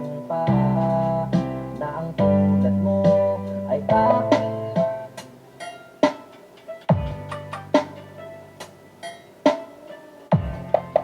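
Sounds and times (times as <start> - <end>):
dance music over sound system: 0.0 - 5.2, 6.9 - 8.0, 10.3 - 11.0.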